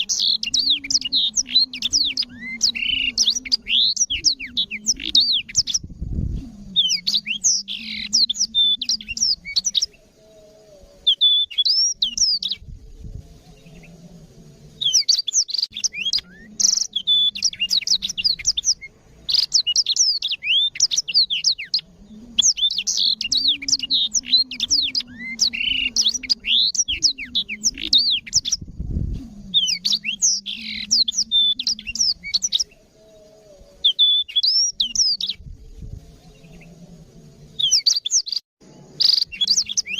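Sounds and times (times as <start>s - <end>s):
canary singing: 0.0s - 39.9s
low thuds: 28.6s - 29.5s.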